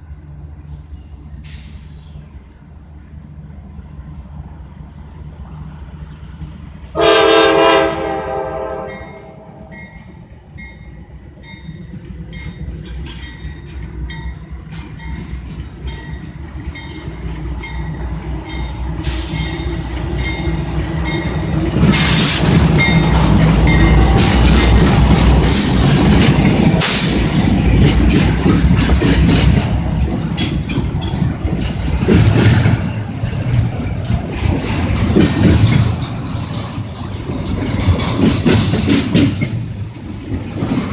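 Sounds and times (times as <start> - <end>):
train rumbling past: 0.0 - 40.9
wheels clickety-clack on rail joints: 5.5 - 40.9
train horn: 6.9 - 9.8.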